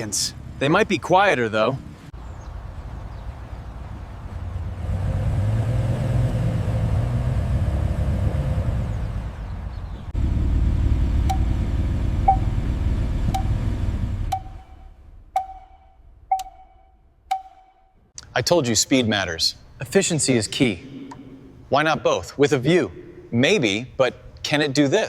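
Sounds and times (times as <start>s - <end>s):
road rumble: 0.0s - 17.3s
car engine: 3.9s - 15.4s
short sharp pings: 14.3s - 18.0s.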